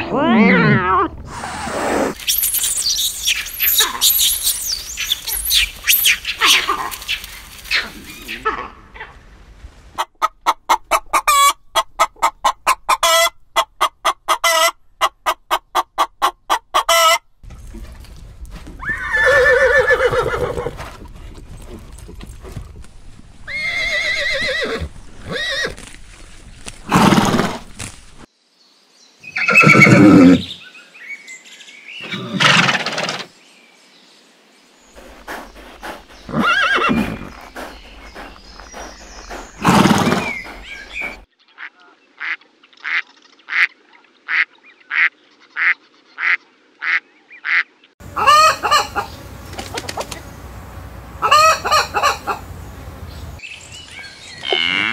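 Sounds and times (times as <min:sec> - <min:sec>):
hen clucking: 0:10.0 - 0:17.2, 0:35.0 - 0:41.2, 0:46.2 - 0:50.3, 0:51.1 - 0:53.4
horses neighing: 0:18.8 - 0:22.7, 0:23.4 - 0:25.8, 0:26.8 - 0:27.7, 0:29.4 - 0:30.5, 0:35.0 - 0:41.3.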